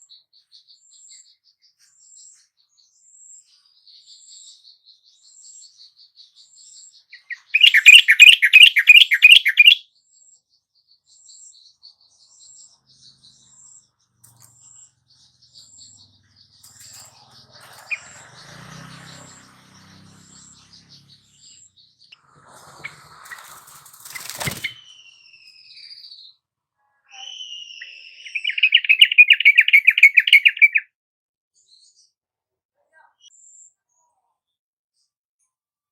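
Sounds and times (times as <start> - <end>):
faint high chirps: 10.9 - 26.4, 27.0 - 30.7.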